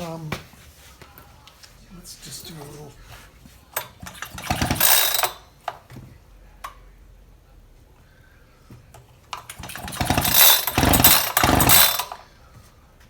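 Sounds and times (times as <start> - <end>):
starter rope rasping pull: 3.8 - 5.4, 9.4 - 12.2.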